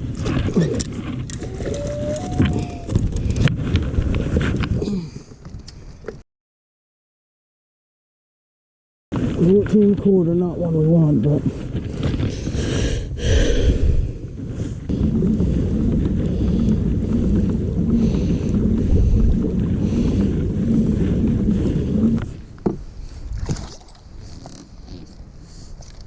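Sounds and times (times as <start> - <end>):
low rumble with regular pulse: 11.6 - 22.3.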